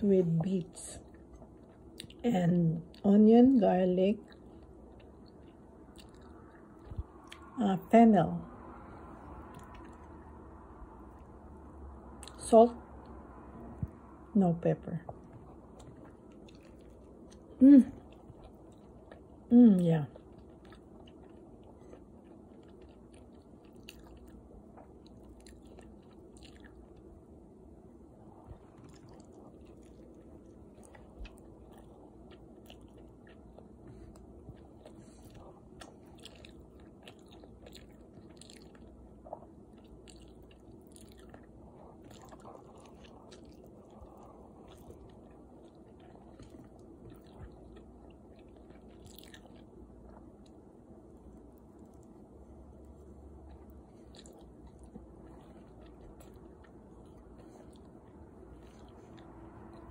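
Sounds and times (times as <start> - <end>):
low steady hum: 0.0 - 59.9
faint chewing and mouth clicks: 0.1 - 7.6, 8.8 - 12.4, 15.0 - 59.9.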